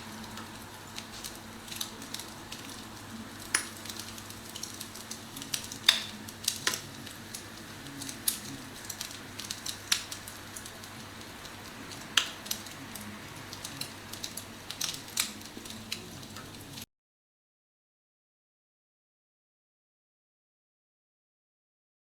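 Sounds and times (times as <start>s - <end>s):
fire crackling through phone speaker: 0.0s - 16.9s.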